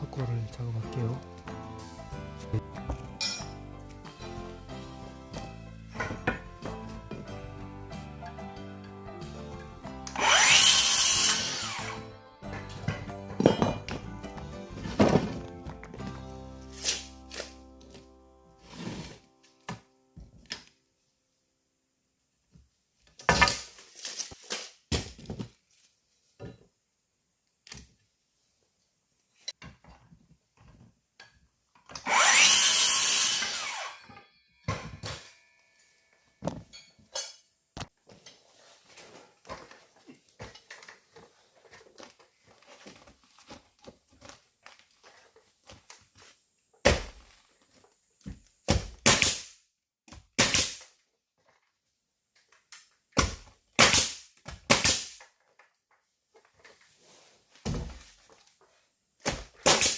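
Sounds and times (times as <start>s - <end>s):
power saw cutting: 10.0s - 12.1s, 32.0s - 34.1s.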